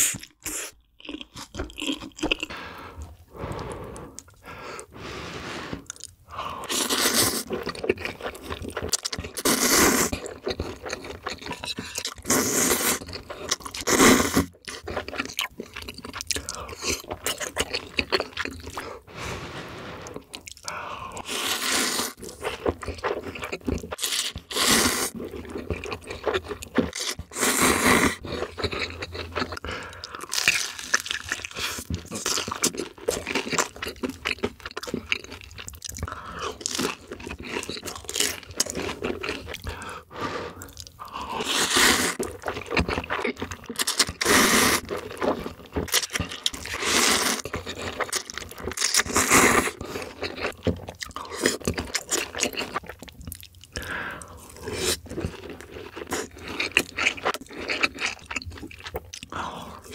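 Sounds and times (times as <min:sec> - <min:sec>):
chewing: 0:00.0 - 0:04.9, 0:05.7 - 0:19.0, 0:20.0 - 0:59.9
slurping noodles: 0:02.4 - 0:15.2, 0:16.2 - 0:29.9, 0:36.1 - 0:50.4
crisp crunching of fried bun: 0:28.2 - 0:39.9, 0:40.6 - 0:59.9.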